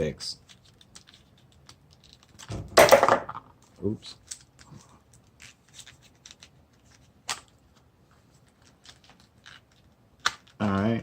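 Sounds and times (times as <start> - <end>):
small plastic clicks and rubbing: 0.4 - 2.5, 8.4 - 11.0.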